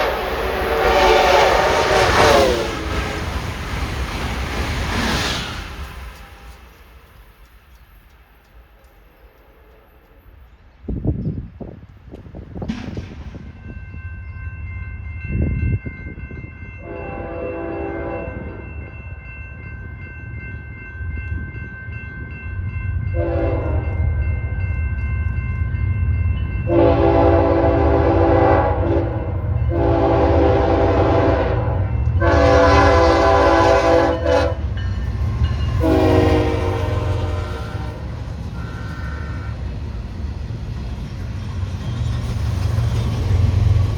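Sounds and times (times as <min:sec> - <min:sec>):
locomotive air horn blasts: 0:00.0 - 0:03.0, 0:16.8 - 0:18.6, 0:23.2 - 0:23.9, 0:26.7 - 0:34.8, 0:35.8 - 0:39.6
train rumble: 0:00.0 - 0:43.9.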